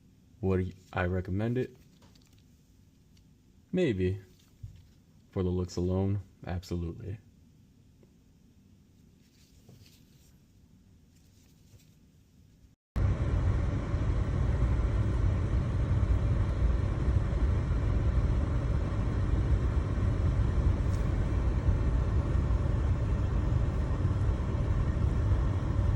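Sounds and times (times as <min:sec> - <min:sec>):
loud low rumbling: 0:13.0 - 0:25.9.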